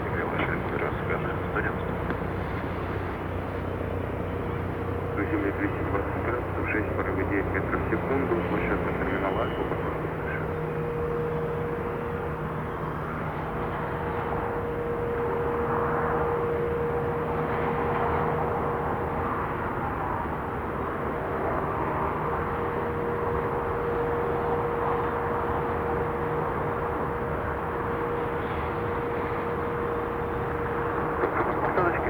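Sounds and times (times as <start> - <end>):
jet engine rushing and droning: 0.0 - 32.0.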